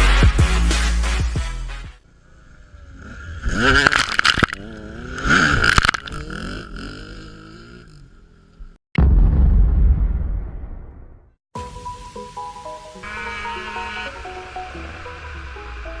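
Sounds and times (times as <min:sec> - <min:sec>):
dirt bike engine revving: 0:02.0 - 0:08.8.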